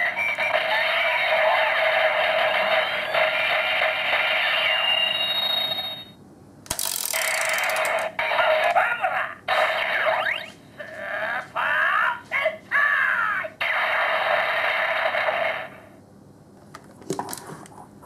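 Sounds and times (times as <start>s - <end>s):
toy electronic sound effects: 0.0s - 6.2s, 6.8s - 10.6s.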